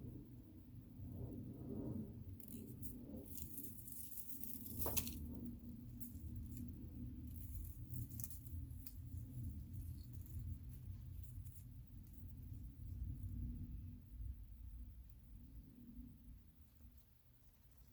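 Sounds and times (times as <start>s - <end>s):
low steady hum: 0.0s - 17.9s
dried plants crackling: 2.4s - 13.4s.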